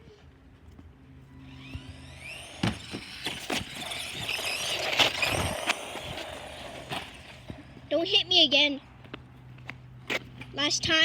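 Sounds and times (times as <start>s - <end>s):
electric motor whining: 1.3s - 7.9s.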